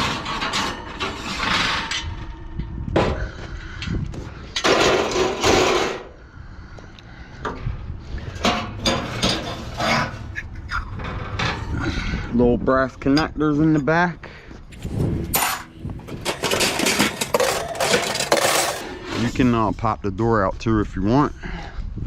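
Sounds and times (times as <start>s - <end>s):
sheet metal clanking: 0.0s - 2.4s, 8.4s - 10.3s, 15.0s - 19.4s
loud scraping rush: 14.7s - 19.8s.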